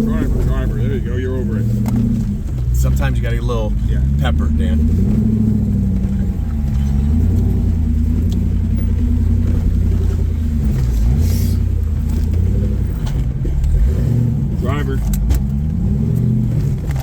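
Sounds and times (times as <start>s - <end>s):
off-road vehicle engine under load: 0.0s - 17.0s.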